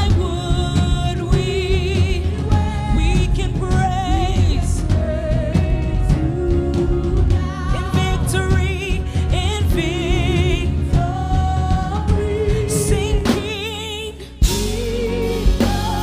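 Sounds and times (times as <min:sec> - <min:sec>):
band playing steady beat: 0:00.0 - 0:16.0
voices singing with vibrato: 0:00.0 - 0:16.0.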